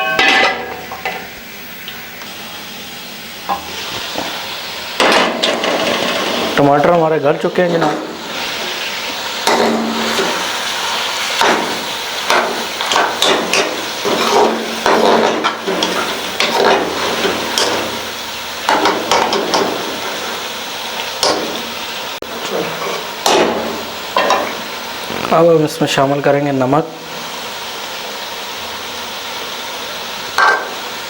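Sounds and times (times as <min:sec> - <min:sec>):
food sizzling: 0:00.0 - 0:31.0
metal spoon scraping pan: 0:11.4 - 0:17.8.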